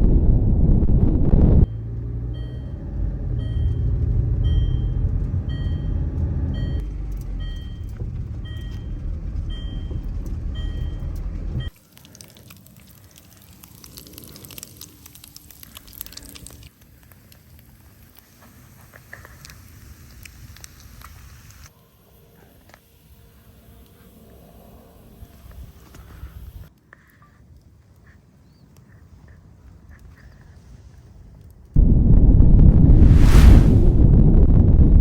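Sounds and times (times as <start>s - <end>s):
vehicle running: 1.6s - 11.8s
short electronic beeps: 3.4s - 6.8s
faint crackles and ticks: 7.0s - 31.8s.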